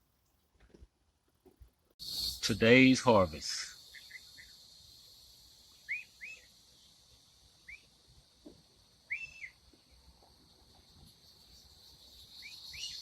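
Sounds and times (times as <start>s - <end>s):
high hum of insects: 1.8s - 13.0s
short bird chirps: 3.7s - 5.1s, 5.7s - 7.0s, 7.6s - 8.0s, 9.0s - 9.6s, 11.4s - 13.0s.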